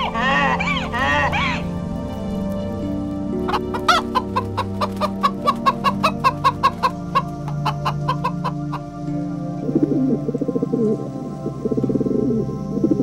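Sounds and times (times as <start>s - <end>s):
hen squawk: 0.0s - 1.7s, 3.4s - 8.8s
hens clucking: 0.0s - 8.9s
background music with low notes: 0.0s - 13.0s.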